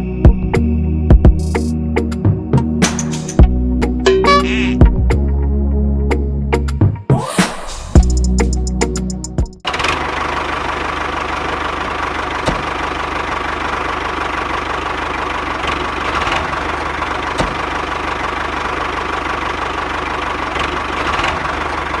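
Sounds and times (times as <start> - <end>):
short bit of music: 4.1 - 5.0.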